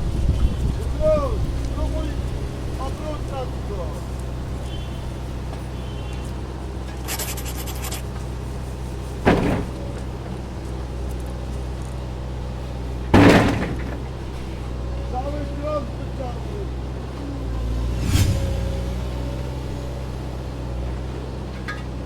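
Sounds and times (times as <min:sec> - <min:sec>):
sudden loud knocks: 0:09.3 - 0:10.2, 0:13.2 - 0:14.1.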